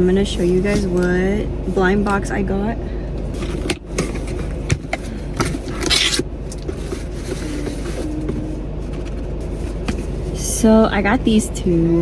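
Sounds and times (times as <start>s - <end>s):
packaging crinkling and rustling: 3.3s - 10.3s
packaging ripping: 5.6s - 6.7s.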